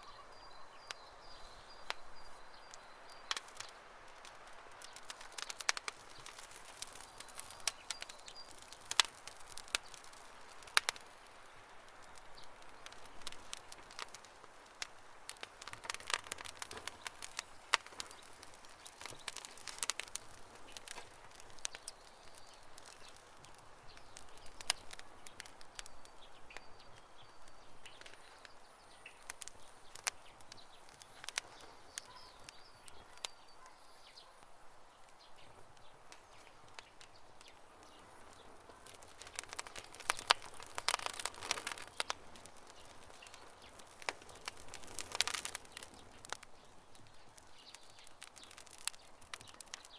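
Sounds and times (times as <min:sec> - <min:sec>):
faint bird chirps: 0:00.0 - 0:03.9, 0:23.8 - 0:49.9
campfire crackling: 0:00.0 - 0:49.9.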